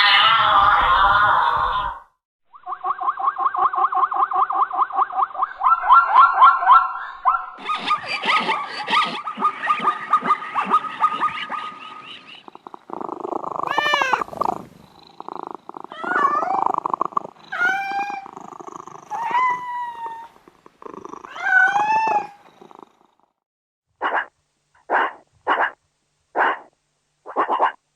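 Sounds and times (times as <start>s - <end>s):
cat purring: 12.4s - 23.4s
cat meowing: 13.6s - 14.7s, 15.8s - 18.4s, 19.0s - 20.4s, 21.3s - 22.5s.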